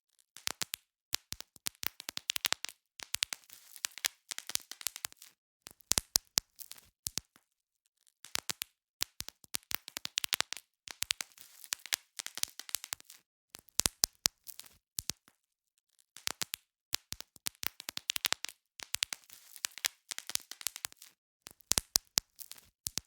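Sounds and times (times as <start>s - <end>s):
bubble wrap popping: 0.4s - 7.4s, 8.2s - 15.4s, 16.2s - 23.0s
plastic sheet crinkling: 18.2s - 21.2s.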